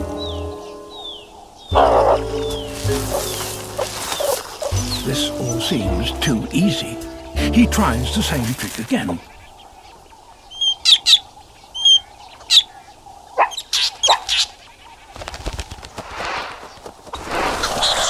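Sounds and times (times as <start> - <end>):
bird alarm calls: 0.1 - 14.6.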